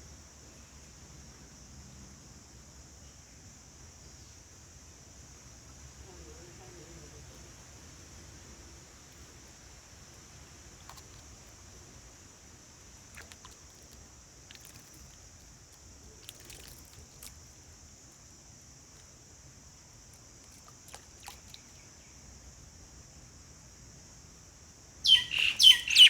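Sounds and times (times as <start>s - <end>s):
short sharp chirps: 25.1s - 26.0s.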